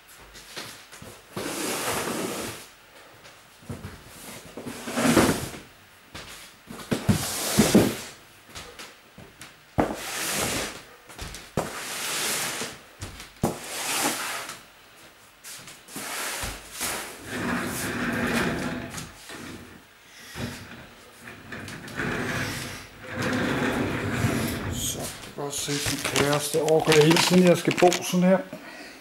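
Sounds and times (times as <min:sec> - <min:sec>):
rustling and scraping belongings: 0:21.2 - 0:28.4.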